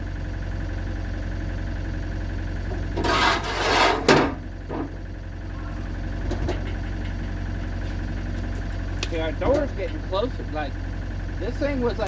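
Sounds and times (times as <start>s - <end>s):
engine idling: 0.0s - 12.0s
metal scraping and creaking: 2.7s - 8.7s.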